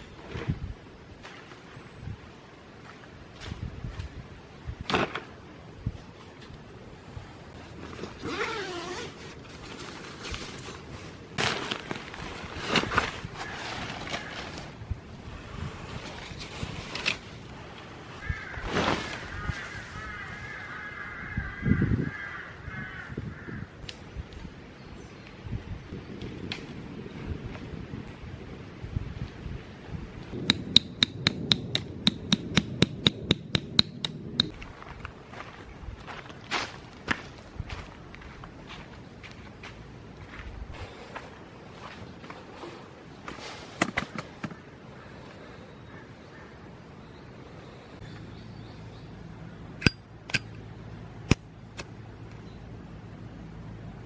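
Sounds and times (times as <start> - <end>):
hammer striking metal tent peg: 30.4 - 34.5.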